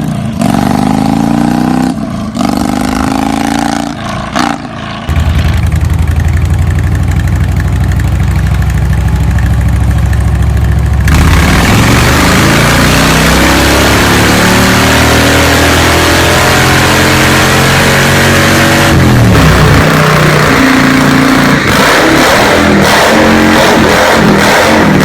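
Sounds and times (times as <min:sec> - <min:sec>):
motorcycle engine accelerating: 0:00.0 - 0:25.0
motorcycle exhaust idling: 0:05.1 - 0:12.7.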